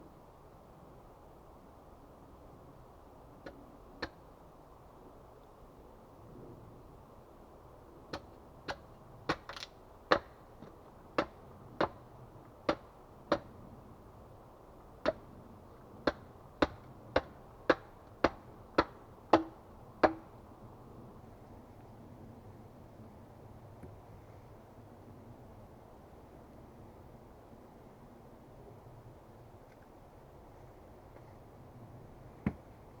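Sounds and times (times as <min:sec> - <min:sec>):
axe chopping wood: 0:08.1 - 0:10.4, 0:11.2 - 0:12.0, 0:12.7 - 0:13.5, 0:15.0 - 0:15.2, 0:16.0 - 0:20.3.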